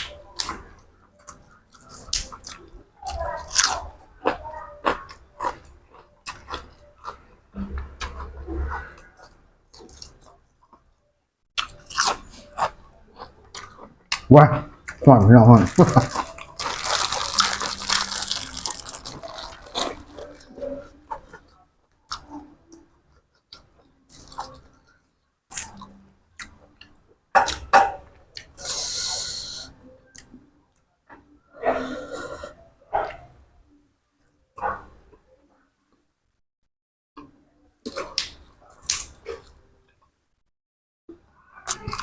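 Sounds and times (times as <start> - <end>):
person chewing food: 0.0 - 11.0, 11.6 - 15.0, 15.6 - 24.9, 37.2 - 40.1.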